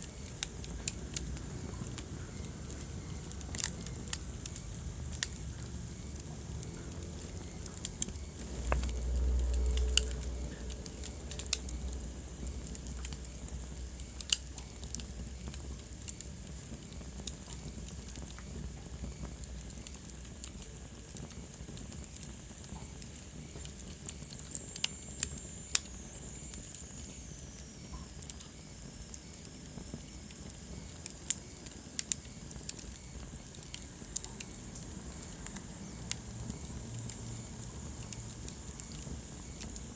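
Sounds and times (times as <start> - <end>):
wood fire crackling: 0.0 - 39.9
low rumble: 8.4 - 14.0.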